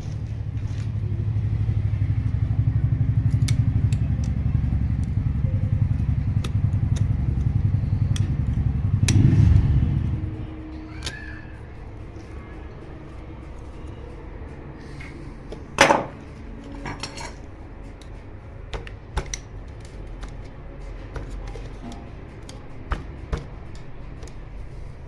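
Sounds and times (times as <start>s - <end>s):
metallic clatter: 15.7s - 17.5s.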